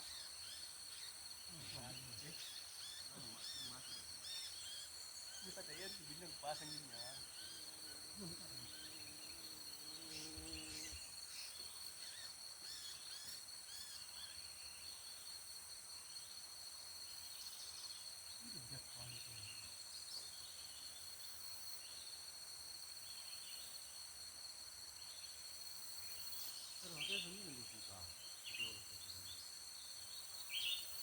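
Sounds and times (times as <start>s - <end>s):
small birds chirping: 0.0s - 15.4s, 17.0s - 22.2s, 25.0s - 31.0s
insects droning: 0.0s - 31.0s.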